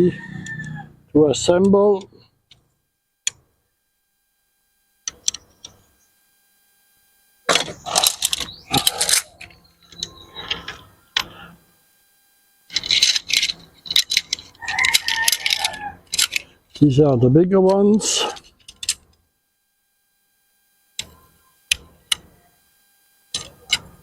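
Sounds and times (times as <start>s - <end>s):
tent poles clicking and clattering: 12.7s - 16.5s.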